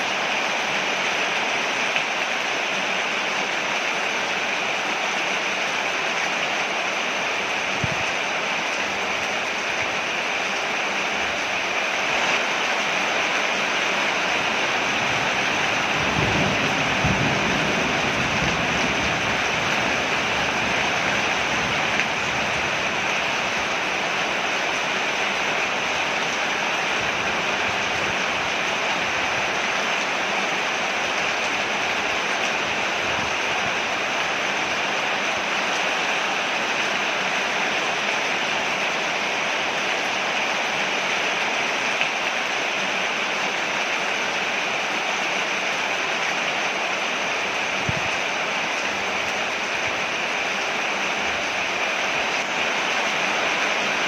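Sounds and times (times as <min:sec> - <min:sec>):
rain falling on a porch: 0:00.0 - 0:54.0.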